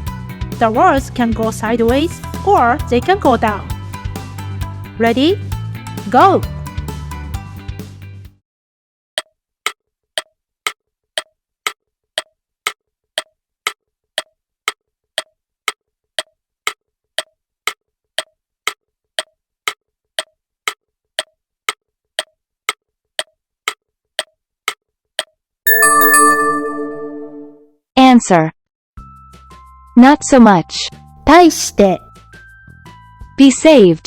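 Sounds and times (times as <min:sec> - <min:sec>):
clock-like timer ticks: 0:09.2 - 0:25.3.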